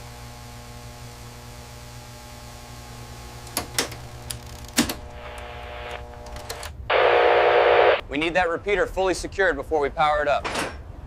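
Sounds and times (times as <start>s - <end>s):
machinery hum: 5.0s - 8.0s.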